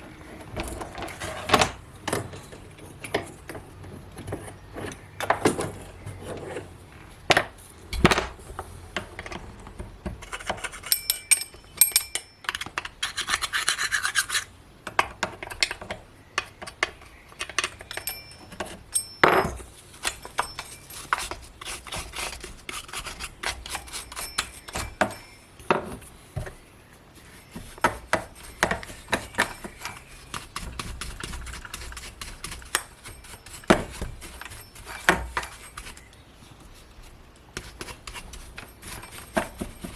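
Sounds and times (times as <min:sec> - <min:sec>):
scraping: 0:00.0 - 0:03.4, 0:27.2 - 0:39.9
metal parts knocking and clinking: 0:10.2 - 0:13.0, 0:17.4 - 0:21.4.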